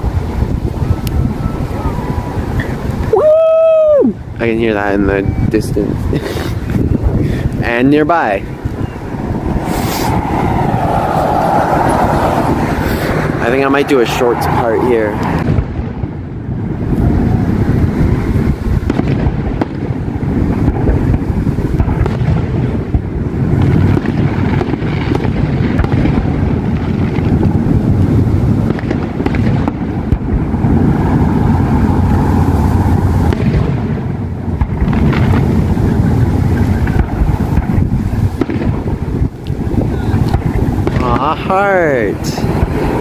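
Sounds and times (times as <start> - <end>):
steady low rumble: 4.2 - 43.0
distant fireworks bangs: 5.9 - 14.6, 15.2 - 43.0.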